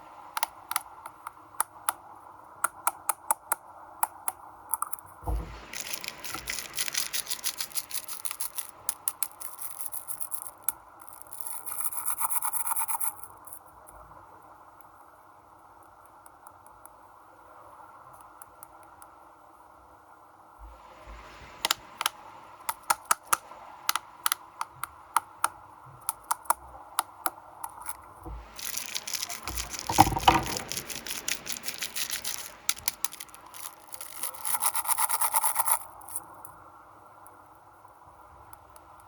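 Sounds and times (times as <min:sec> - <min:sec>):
plastic wrappers crinkling: 0:05.5 - 0:09.8, 0:28.3 - 0:35.7.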